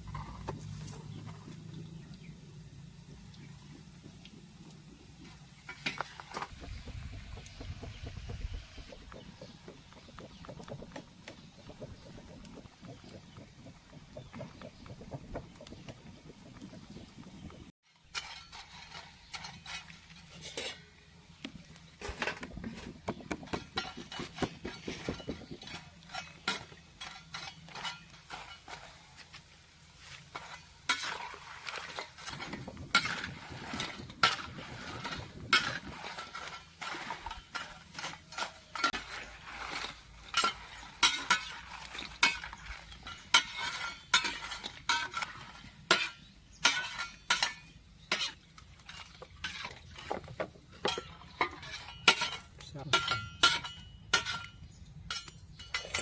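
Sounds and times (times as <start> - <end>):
metal spatula scraping a wok: 17.9 - 21.1, 22.0 - 56.0.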